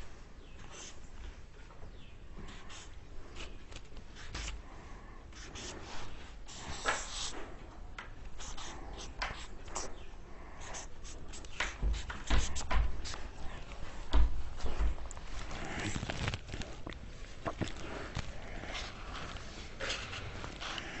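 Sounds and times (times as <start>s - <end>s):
pen scratching: 5.4s - 5.8s, 6.5s - 7.4s, 8.4s - 10.0s, 10.6s - 13.6s
paper rustling: 10.8s - 21.0s.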